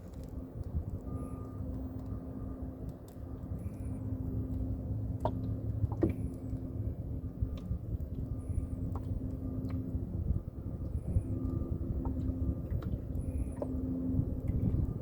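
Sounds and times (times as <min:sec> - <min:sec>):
boat motor humming: 0:03.8 - 0:15.0.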